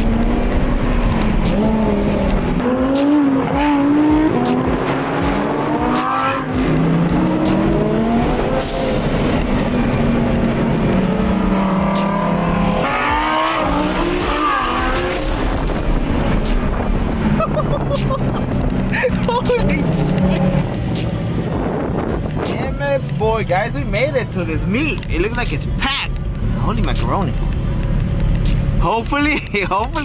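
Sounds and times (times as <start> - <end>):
low road drone: 0.0 - 30.0
sports car engine accelerating: 0.0 - 30.0.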